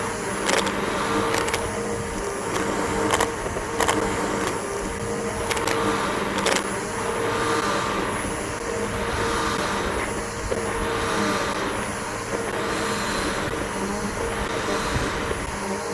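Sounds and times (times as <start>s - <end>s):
sharp clicks: 0.4s - 6.7s.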